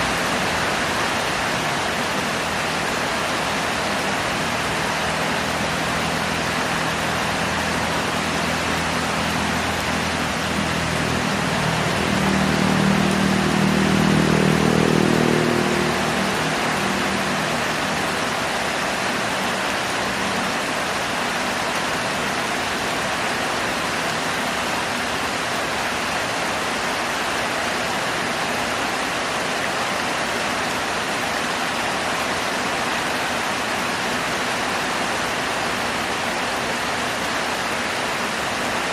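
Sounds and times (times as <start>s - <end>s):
heavy rain falling: 0.0s - 38.9s
vehicle engine passing: 3.4s - 20.8s.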